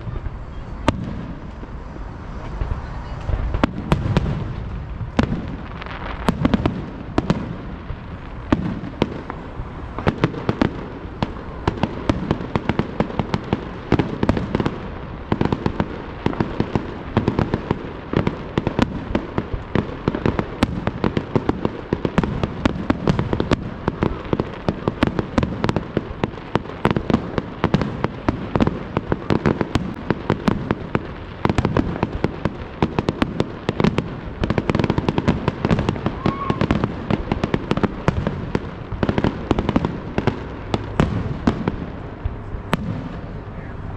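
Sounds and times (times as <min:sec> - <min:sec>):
fireworks bangs: 0:00.0 - 0:43.9.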